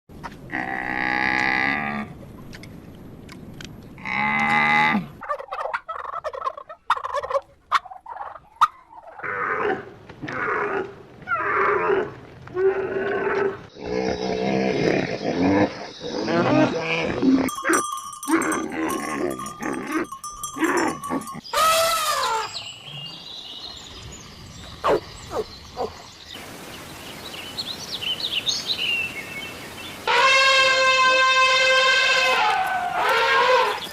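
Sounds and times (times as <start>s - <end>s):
farm animal calls: 13.3s - 22.9s, 30.0s - 33.9s.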